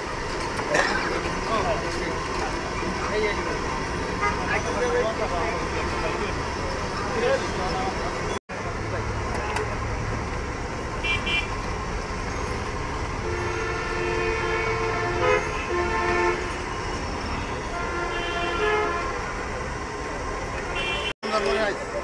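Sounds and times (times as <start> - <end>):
street traffic rumble: 0.0 - 22.0
vehicle horns honking: 4.1 - 4.7, 11.0 - 11.6, 13.2 - 19.6, 20.6 - 21.8.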